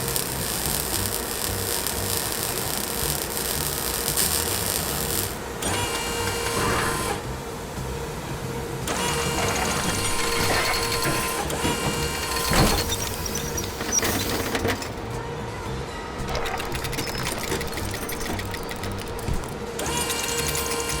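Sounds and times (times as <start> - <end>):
mechanical whirring hum with rattling: 3.9 - 7.5, 8.8 - 15.2, 16.2 - 21.0.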